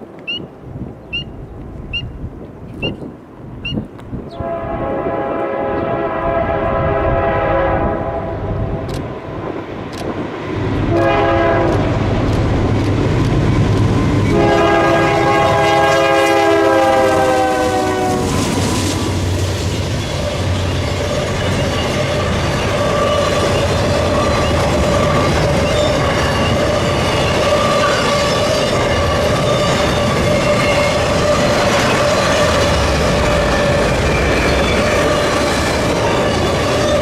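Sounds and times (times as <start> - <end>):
train engine rumbling: 0.0 - 37.0
locomotive horn blasts: 4.3 - 8.5, 10.9 - 12.0, 14.3 - 18.5.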